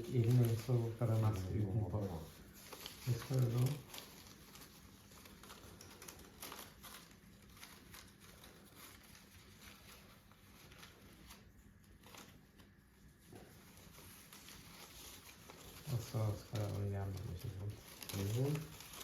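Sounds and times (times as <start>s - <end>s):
paper rustling and crinkling: 0.0s - 19.0s.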